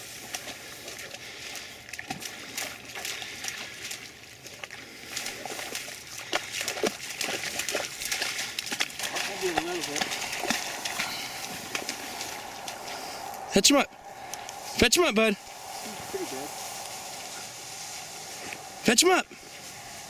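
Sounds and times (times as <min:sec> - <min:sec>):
small water splashes: 0:00.0 - 0:14.8
rustling through wet vegetation: 0:00.0 - 0:20.0.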